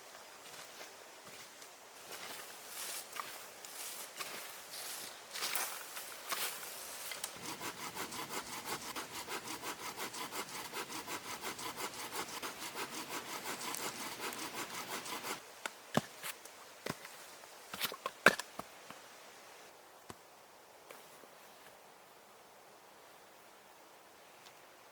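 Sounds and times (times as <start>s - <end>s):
hand saw cutting wood: 7.2s - 15.4s.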